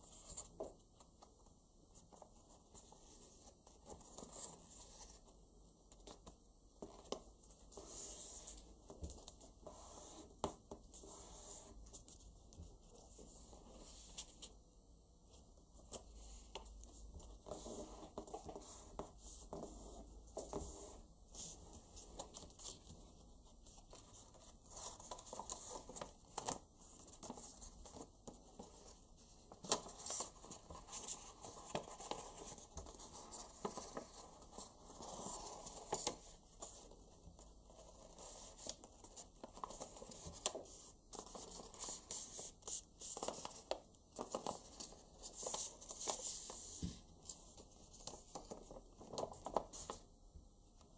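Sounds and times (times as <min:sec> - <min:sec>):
paper rustling and crinkling: 0:15.8 - 0:50.0.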